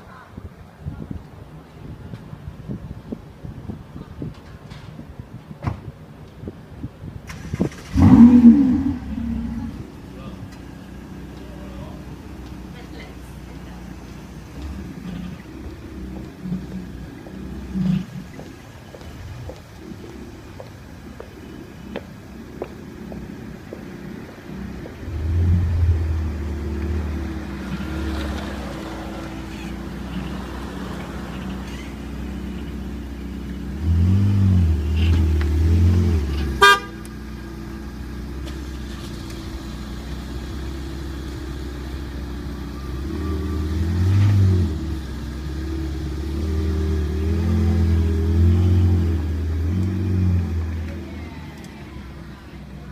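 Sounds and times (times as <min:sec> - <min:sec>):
car engine revving: 0:07.3 - 0:11.4, 0:22.6 - 0:51.1.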